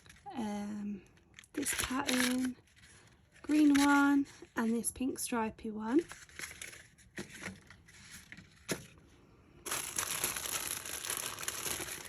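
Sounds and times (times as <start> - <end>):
packaging crinkling: 1.6 - 2.6, 9.6 - 12.0.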